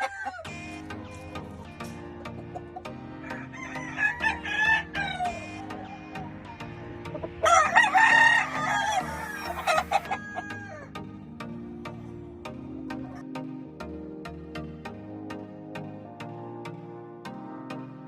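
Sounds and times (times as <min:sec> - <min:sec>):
roosters crowing: 0:00.0 - 0:01.3, 0:03.2 - 0:10.9.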